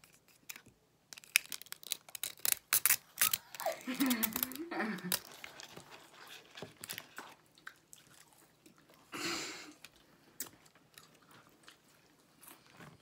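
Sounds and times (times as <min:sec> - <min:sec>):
people chewing fries: 0:02.8 - 0:13.0.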